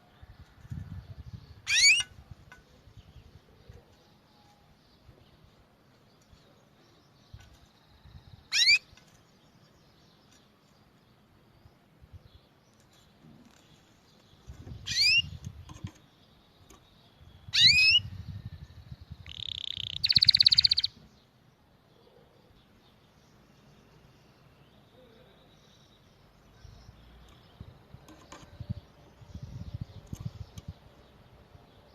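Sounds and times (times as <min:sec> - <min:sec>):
canary singing: 0:01.4 - 0:02.2, 0:08.0 - 0:09.1, 0:14.5 - 0:21.0.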